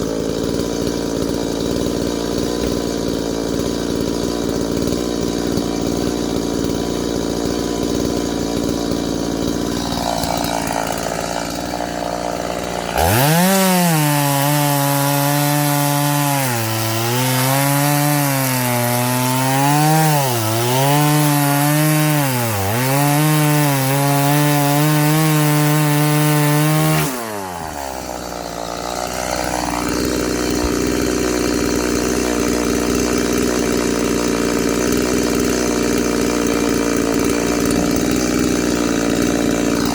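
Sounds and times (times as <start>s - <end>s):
chainsaw cutting firewood: 0.0s - 39.9s.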